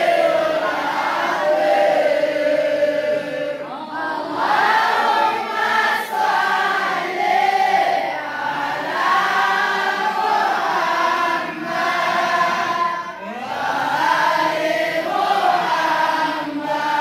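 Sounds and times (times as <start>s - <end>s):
group of voices chanting: 0.0s - 17.0s.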